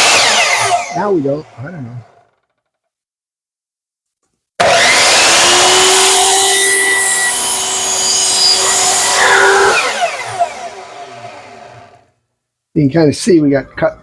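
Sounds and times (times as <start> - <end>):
electric saw cutting wood: 0.0 - 2.6, 4.6 - 12.1.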